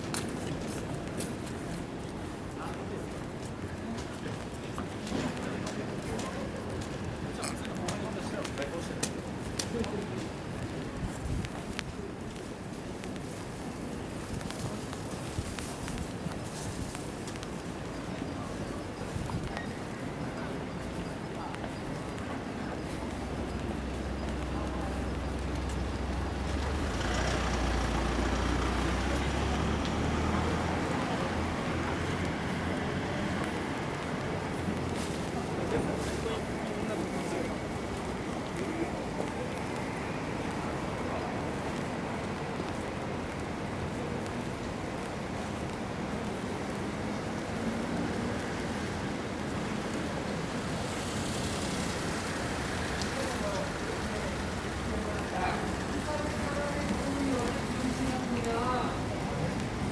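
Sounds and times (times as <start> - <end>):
city street noise: 0.0 - 59.9
road noise hiss: 0.0 - 59.9
large vehicle engine rumble: 22.0 - 59.9
rain hiss: 49.6 - 59.9.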